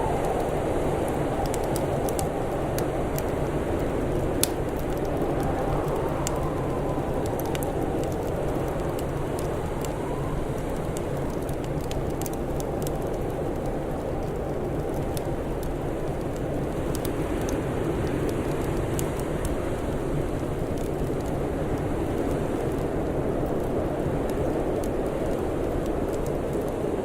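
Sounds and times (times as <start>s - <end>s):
low rush of wind: 0.0s - 27.0s
wood fire crackling and popping: 0.0s - 27.0s.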